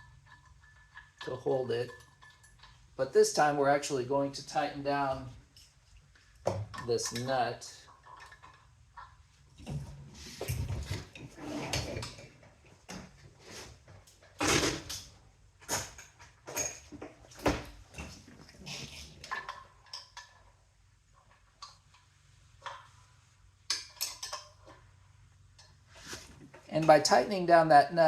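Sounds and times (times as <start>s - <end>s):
metal tools clanking and clicking: 15.7s - 16.9s, 23.7s - 24.8s.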